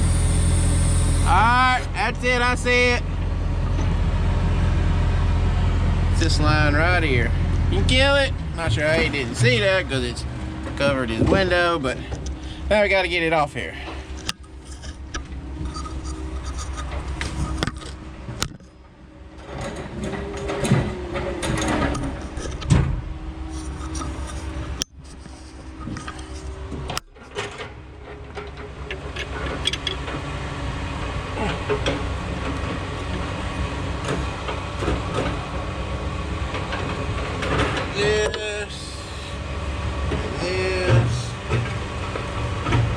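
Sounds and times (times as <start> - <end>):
diesel engine running: 0.0 - 42.9
metal clanks and knocks: 19.4 - 30.3.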